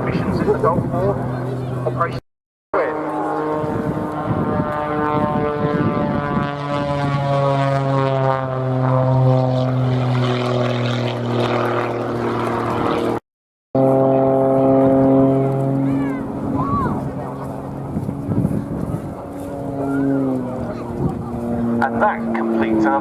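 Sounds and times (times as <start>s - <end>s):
propeller plane engine drone: 0.0s - 2.2s, 2.8s - 13.2s, 13.8s - 23.0s.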